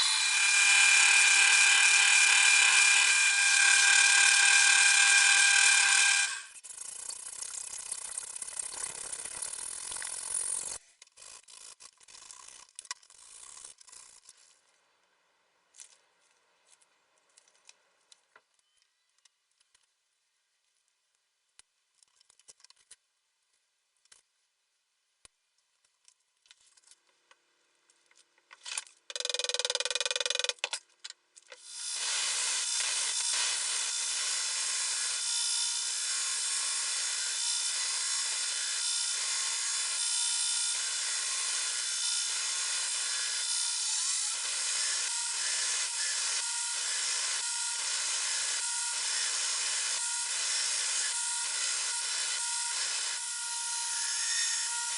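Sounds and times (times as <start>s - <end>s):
power grinder on steel blade: 0.0s - 7.2s, 31.6s - 54.9s.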